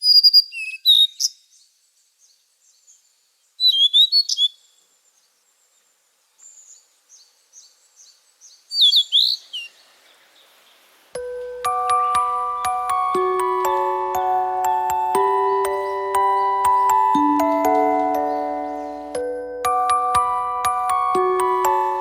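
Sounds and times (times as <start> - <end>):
songbird singing: 0.0 - 22.0
soft repeated high notes: 11.2 - 22.0.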